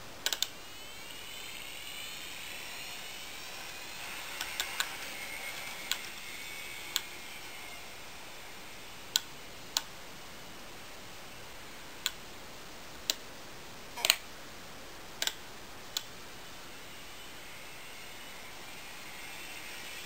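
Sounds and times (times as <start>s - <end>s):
faint steady hiss: 0.0s - 20.0s
sharp clicks: 0.2s - 0.5s, 15.2s - 16.1s.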